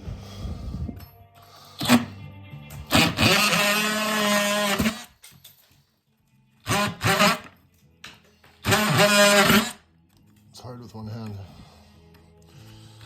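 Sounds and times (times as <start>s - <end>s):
handheld power tool bursts: 1.8s - 2.2s, 2.8s - 5.2s, 6.6s - 7.5s, 8.6s - 9.8s.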